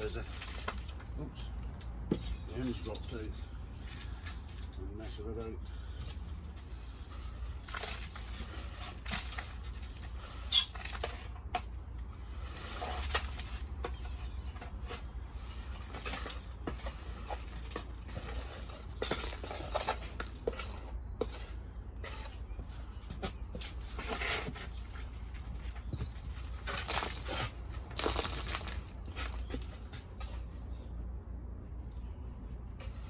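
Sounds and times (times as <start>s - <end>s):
hands rustling through potting mix: 15.3s - 30.5s.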